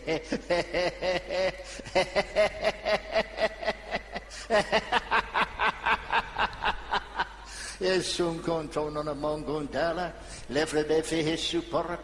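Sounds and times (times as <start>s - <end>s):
man laughing: 0.0s - 7.6s.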